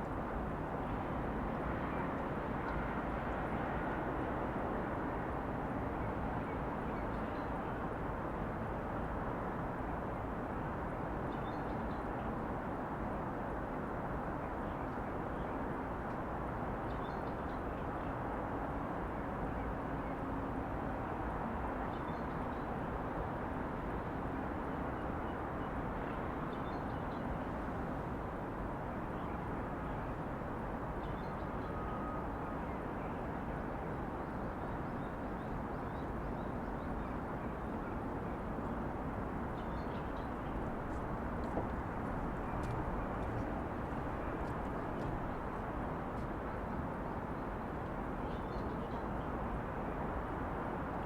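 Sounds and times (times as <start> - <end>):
distant traffic hum: 27.2 - 50.9.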